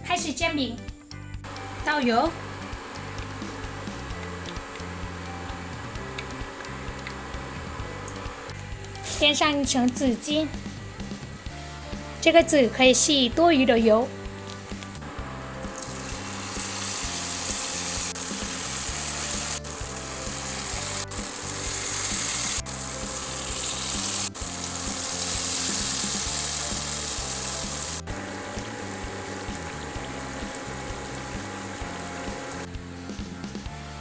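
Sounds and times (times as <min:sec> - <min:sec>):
background music: 0:00.0 - 0:34.0
pancakes sizzling in oil: 0:15.7 - 0:32.7.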